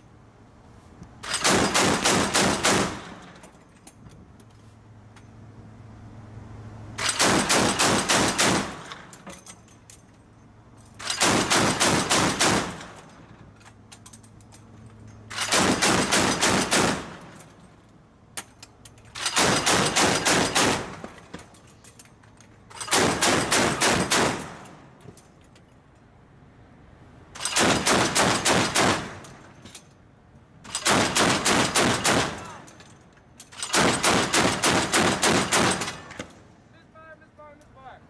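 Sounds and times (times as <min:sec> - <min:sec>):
machine gun firing bursts: 0:01.3 - 0:03.2, 0:07.0 - 0:08.8, 0:11.0 - 0:12.9, 0:15.3 - 0:17.2, 0:19.2 - 0:20.9, 0:22.9 - 0:24.6, 0:27.4 - 0:29.2, 0:30.8 - 0:32.6, 0:33.6 - 0:36.1.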